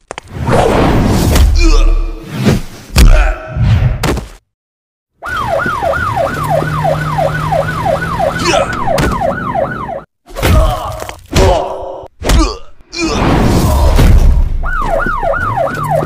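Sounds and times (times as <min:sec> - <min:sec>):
fight hit sounds: 0:02.9 - 0:04.3, 0:10.3 - 0:14.6
police siren yelping: 0:05.2 - 0:10.1, 0:14.6 - 0:16.0.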